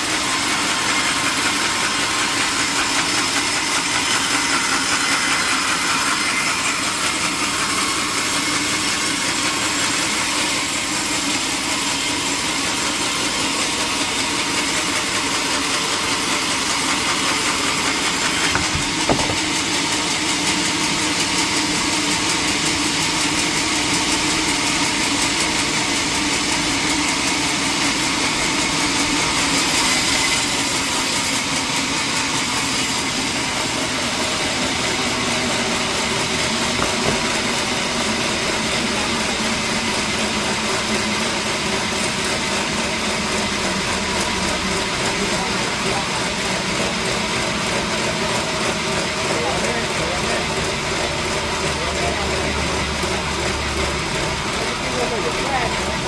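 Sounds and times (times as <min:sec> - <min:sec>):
sawmill machinery droning: 0:00.0 - 0:56.0
sharp knock: 0:18.3 - 0:19.7, 0:36.8 - 0:37.6.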